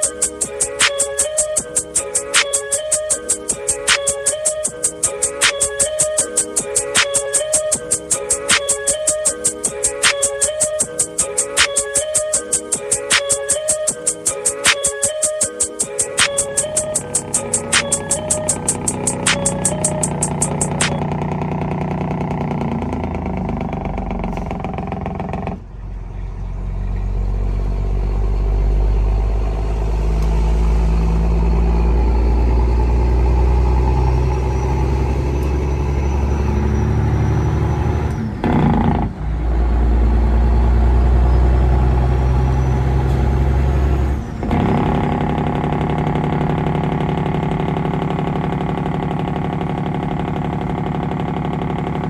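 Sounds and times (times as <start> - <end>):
thin high whine: 0.0 - 21.3
truck diesel engine under load: 16.4 - 52.0.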